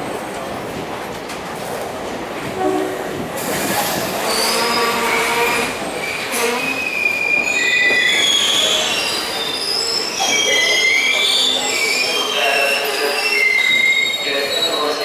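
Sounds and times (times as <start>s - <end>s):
train coaches rumbling and clattering: 0.0s - 15.0s
metallic squealing of train brakes: 3.6s - 15.0s.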